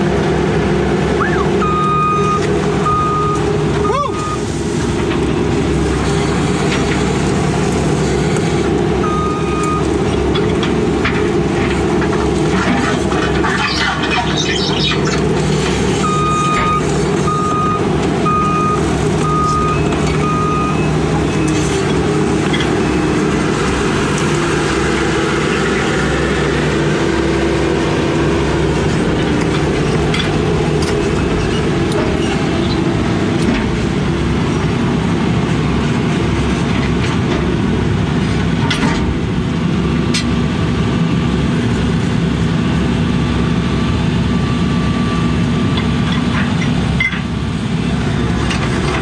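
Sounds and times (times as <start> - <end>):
excavator diesel engine working: 0.0 - 49.0
backup alarm beeping: 1.2 - 4.4, 9.0 - 9.9, 16.0 - 21.6.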